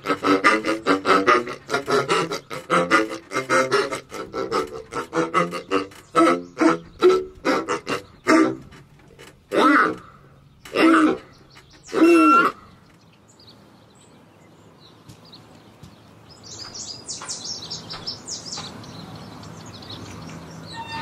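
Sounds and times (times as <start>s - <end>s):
high bird chirps: 16.3s - 21.0s.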